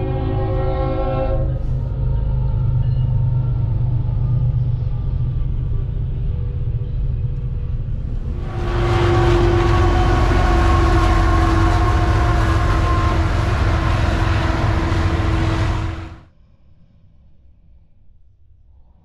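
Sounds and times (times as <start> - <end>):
locomotive horn tones: 0.0 - 1.9, 8.1 - 16.3
diesel locomotive engine rumble: 0.0 - 16.3
train wheels rolling: 4.0 - 16.3.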